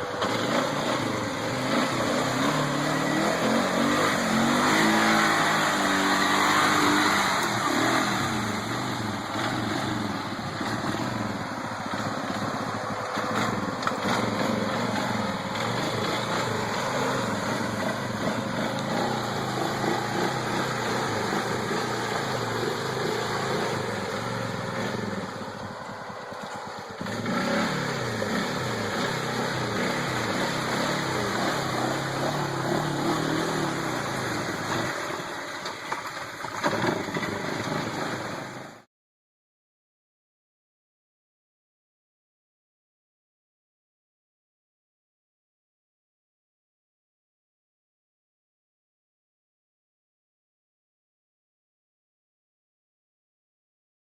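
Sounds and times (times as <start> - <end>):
atv engine running and revving: 0.0 - 38.9.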